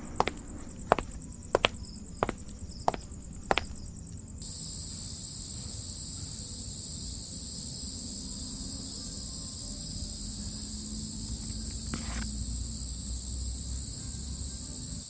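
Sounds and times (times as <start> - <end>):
cricket trilling: 0.0 - 5.2
high-pitched insect chorus: 0.0 - 15.0.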